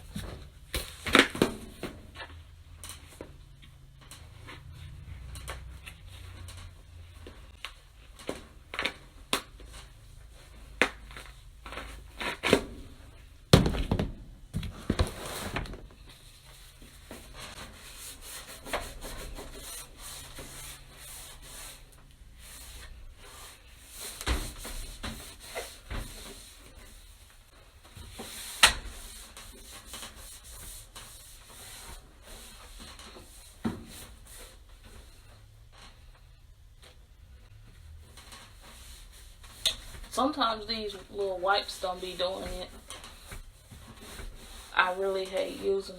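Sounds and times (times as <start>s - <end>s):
wiping and scrubbing: 15.2s - 35.4s, 37.8s - 45.9s.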